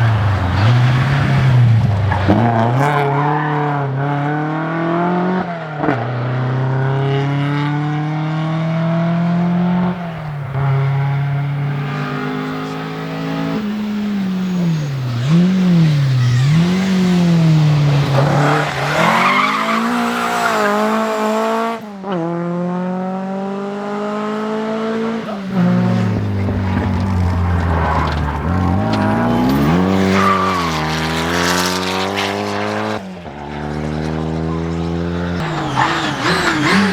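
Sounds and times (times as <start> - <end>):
tyres squealing and skidding: 0.0 - 3.8, 9.0 - 21.8, 24.3 - 32.6, 34.4 - 36.9
rally car engines accelerating: 0.0 - 36.9.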